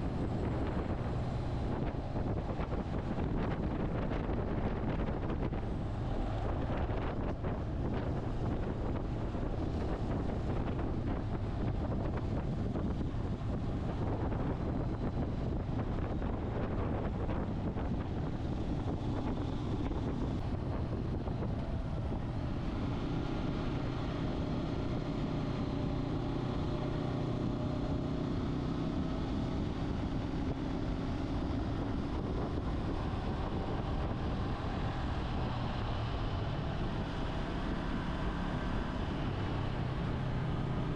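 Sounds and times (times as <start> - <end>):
motorcycle engine drone: 0.0 - 40.9
wind buffeting microphone: 0.0 - 40.9.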